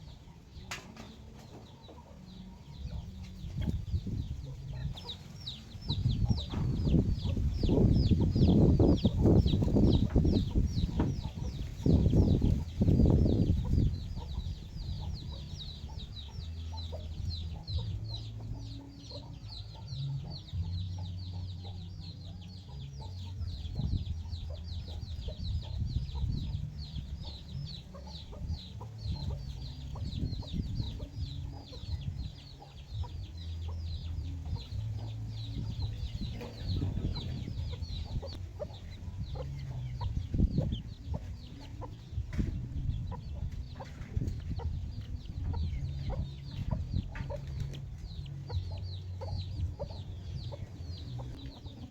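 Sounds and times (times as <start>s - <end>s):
chickens clucking: 0.0s - 51.9s
chicks peeping: 0.0s - 51.9s
low rumble: 22.8s - 51.9s.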